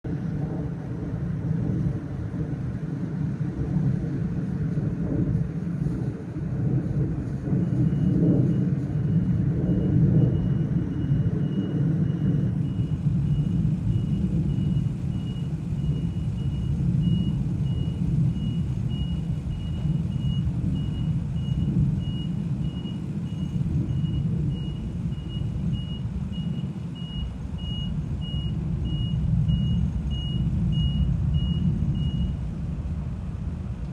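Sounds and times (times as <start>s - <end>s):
low rumble: 0.0s - 33.9s
reversing alarm beeping: 7.5s - 32.5s.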